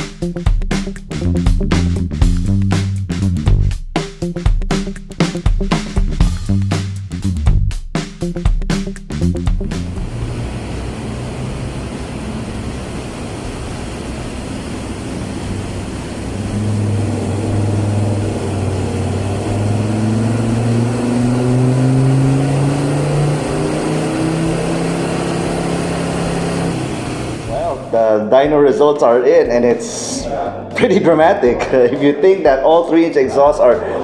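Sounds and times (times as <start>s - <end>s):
diesel engine revving under load: 9.2s - 27.9s.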